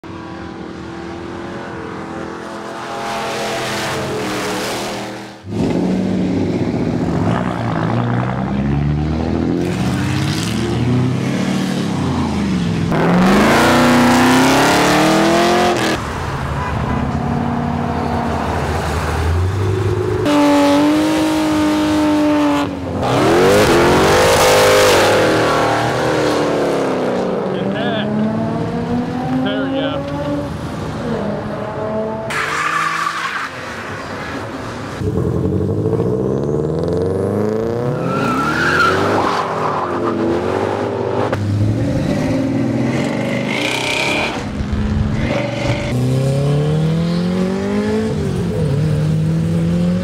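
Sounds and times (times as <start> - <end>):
car engines revving: 0.0 - 50.0.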